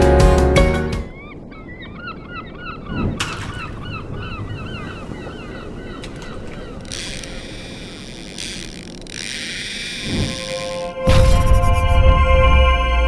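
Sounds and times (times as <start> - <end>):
flock of birds calling: 1.1 - 10.5.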